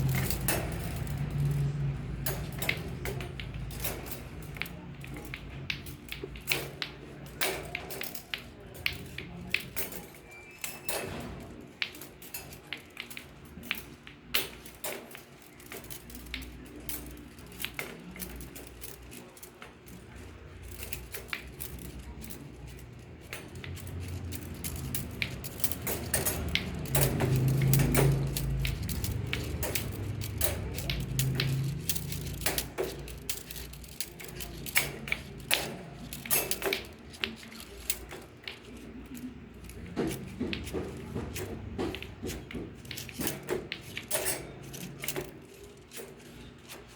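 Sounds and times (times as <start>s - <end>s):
clacker balls clicking and knocking: 0.0s - 46.9s.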